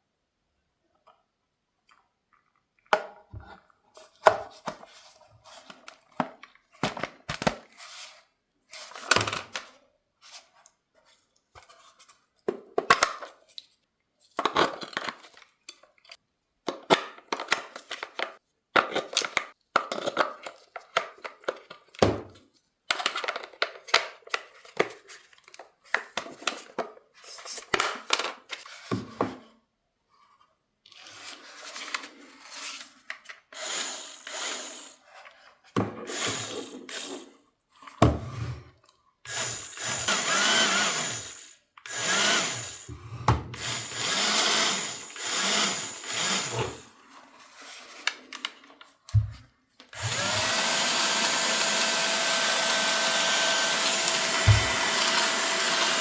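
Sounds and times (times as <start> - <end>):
electric toy motor whirring: 39.3 - 42.9, 43.5 - 46.9, 50.0 - 56.0.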